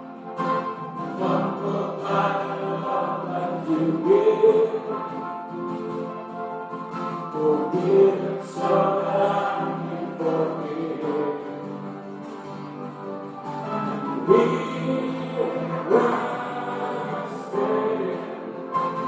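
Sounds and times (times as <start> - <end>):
held instrumental chords: 0.0 - 19.0
group singing worship song: 0.5 - 5.7, 7.3 - 12.0, 13.7 - 19.0.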